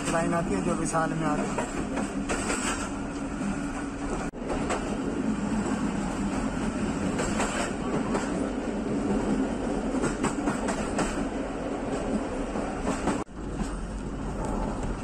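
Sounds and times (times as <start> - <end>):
train coach rumbling on track: 0.0 - 15.0.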